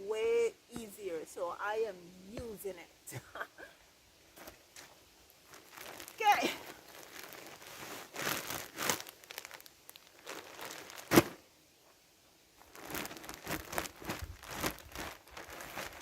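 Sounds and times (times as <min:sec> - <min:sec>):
plastic crinkling: 0:05.3 - 0:11.4, 0:12.6 - 0:16.0.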